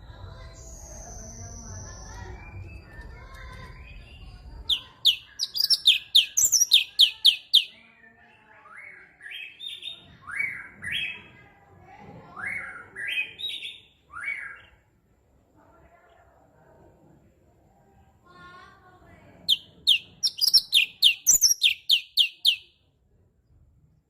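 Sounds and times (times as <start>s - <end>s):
bird singing: 0.4s - 8.2s, 19.5s - 22.7s.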